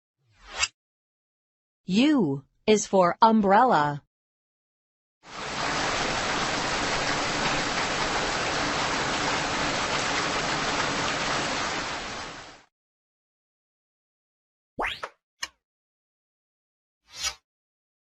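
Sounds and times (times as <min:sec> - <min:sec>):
steady rain: 0:05.3 - 0:12.7.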